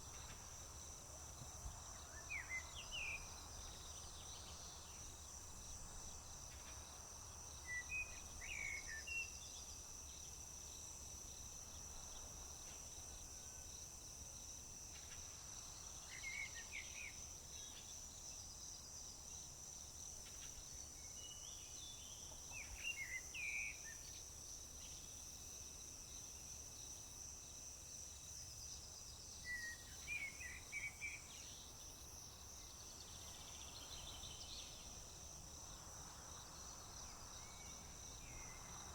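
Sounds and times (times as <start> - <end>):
songbird singing: 29.4 - 31.8, 32.6 - 35.3.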